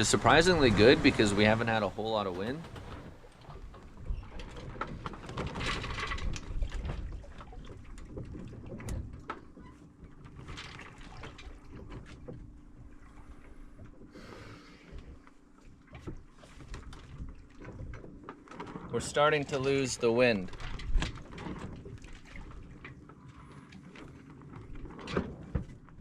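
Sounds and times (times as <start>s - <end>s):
water rushing past hull: 0.0s - 8.2s.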